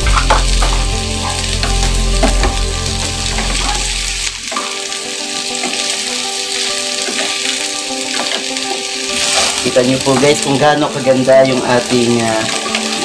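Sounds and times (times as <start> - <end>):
vegetables sizzling in a pan: 0.0 - 13.0
wooden spatulas scraping: 9.1 - 10.4.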